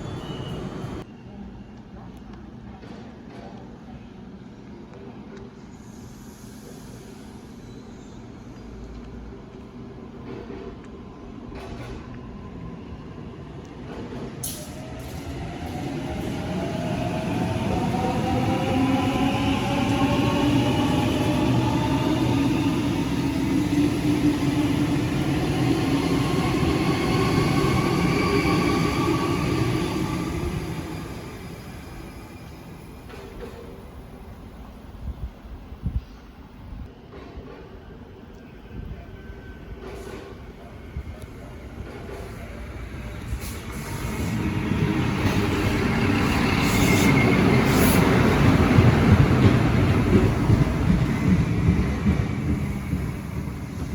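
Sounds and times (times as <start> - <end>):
faint train whine: 0.0 - 53.9
electric train rail rumble: 13.6 - 37.6, 39.7 - 53.9.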